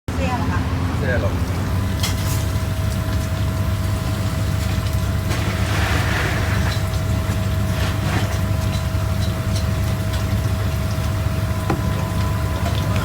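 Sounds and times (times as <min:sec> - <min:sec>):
low mechanical rumble: 0:00.1 - 0:13.0.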